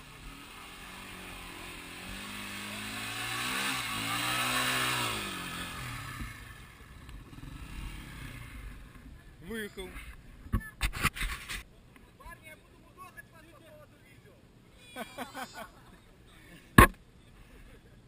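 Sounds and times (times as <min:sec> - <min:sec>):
motorcycle engine revving: 0:00.0 - 0:09.0.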